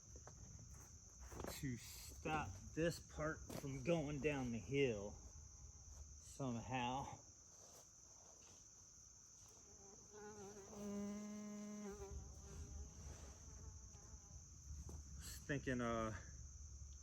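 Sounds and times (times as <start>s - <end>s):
crickets chirping: 0.0s - 17.0s
fly buzzing close by: 9.6s - 14.5s.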